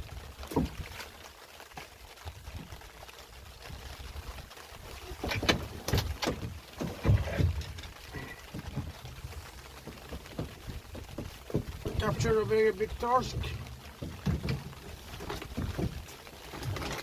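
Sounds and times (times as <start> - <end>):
knocks and thumps in boat: 0.1 - 1.2, 5.0 - 17.0.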